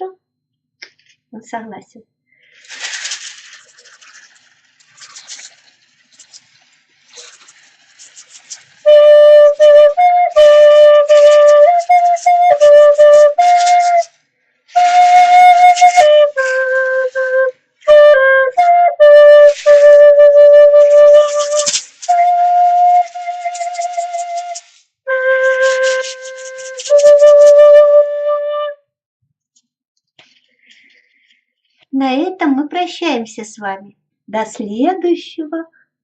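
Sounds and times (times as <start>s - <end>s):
breathy flute tune: 8.8s - 28.9s.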